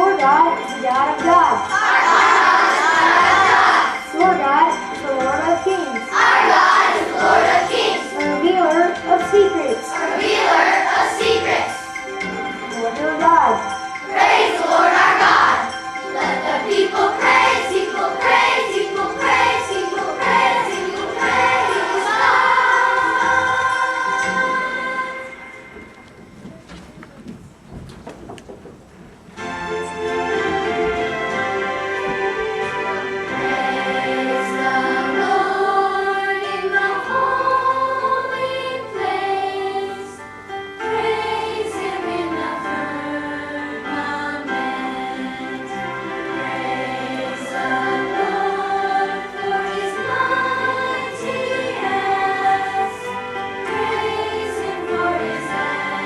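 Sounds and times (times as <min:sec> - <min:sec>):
jingling percussion: 0:00.0 - 0:27.7
instrumental backing: 0:00.0 - 0:56.0
voices singing together: 0:01.6 - 0:05.0, 0:05.9 - 0:12.8, 0:13.6 - 0:25.9, 0:30.3 - 0:56.0.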